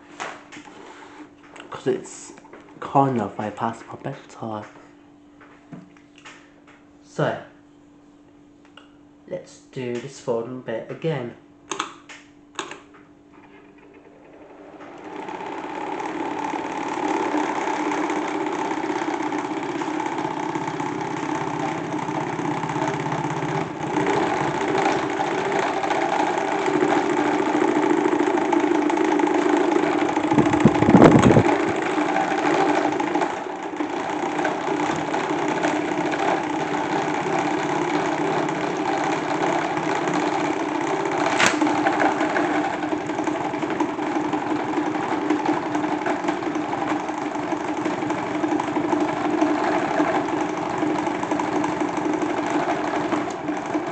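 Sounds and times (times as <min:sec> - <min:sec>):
salad spinner whirring: 0:12.6 - 0:53.9
loud clatter: 0:13.4 - 0:53.9.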